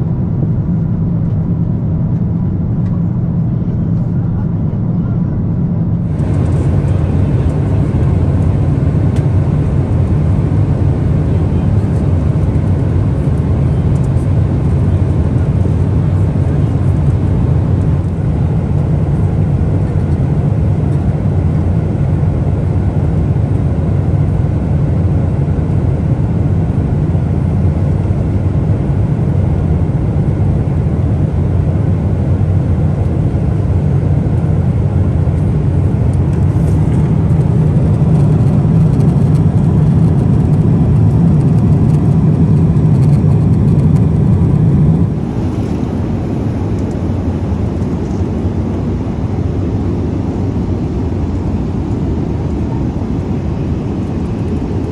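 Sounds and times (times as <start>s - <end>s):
jet engine cabin rumble: 0.0s - 54.9s.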